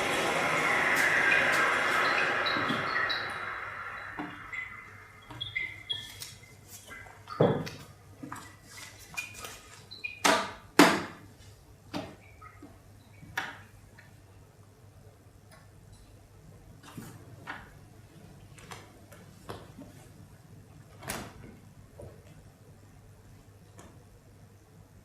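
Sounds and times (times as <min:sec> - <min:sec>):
loud sound: 0:00.0 - 0:06.5.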